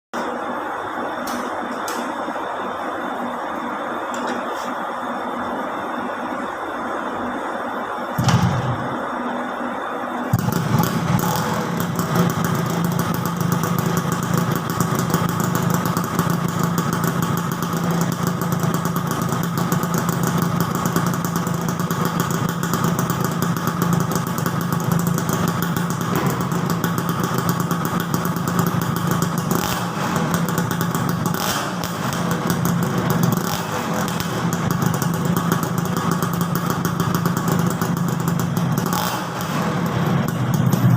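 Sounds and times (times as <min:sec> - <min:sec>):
two-stroke engine idling: 0:10.3 - 0:40.9.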